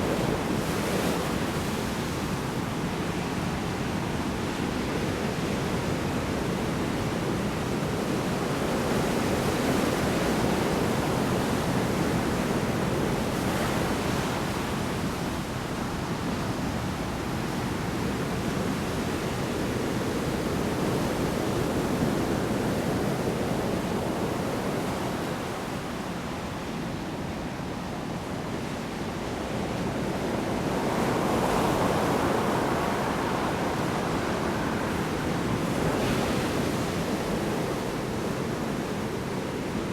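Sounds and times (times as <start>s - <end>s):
storm waves breaking on shore: 28.8s - 39.9s.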